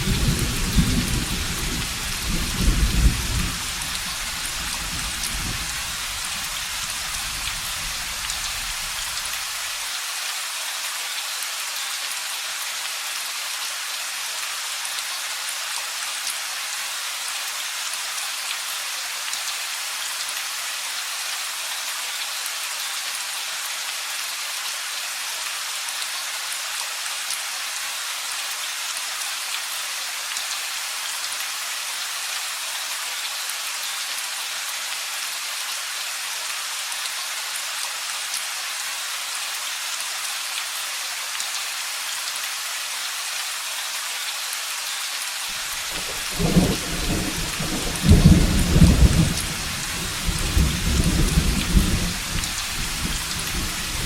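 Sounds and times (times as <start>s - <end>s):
steady rain pattering: 0.0s - 54.0s.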